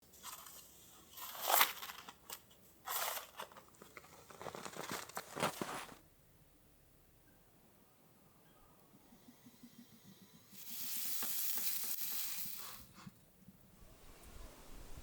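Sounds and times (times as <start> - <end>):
crunching crinkling noises: 0.1 - 6.0.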